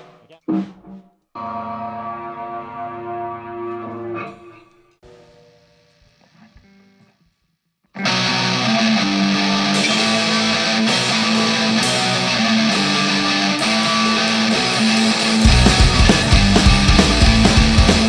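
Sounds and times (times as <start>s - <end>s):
electric guitar riff: 8.0s - 18.0s.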